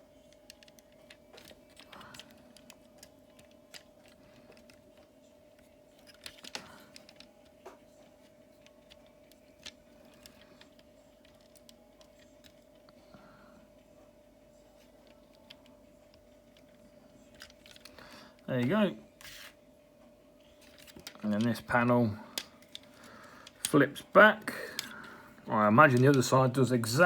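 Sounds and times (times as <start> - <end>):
faint hum: 0.0 - 27.0
plastic toy parts clicking: 0.3 - 7.3, 8.6 - 12.8, 15.0 - 18.0, 24.7 - 25.1, 25.8 - 26.4.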